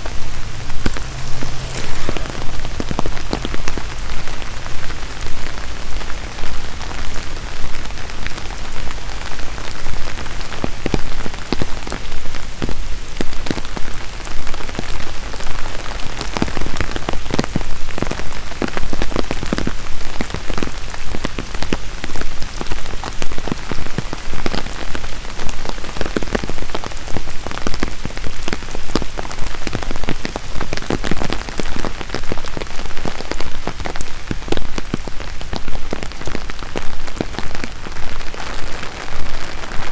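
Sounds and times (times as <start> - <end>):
rain hiss: 0.0 - 16.2.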